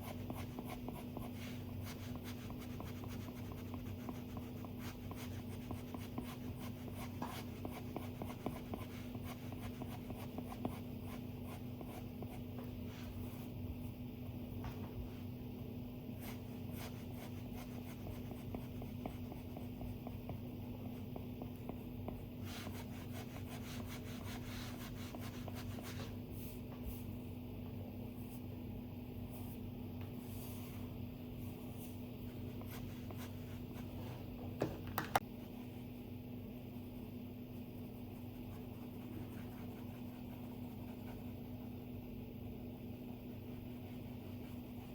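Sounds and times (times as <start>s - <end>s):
faint steady hum: 0.0s - 44.9s.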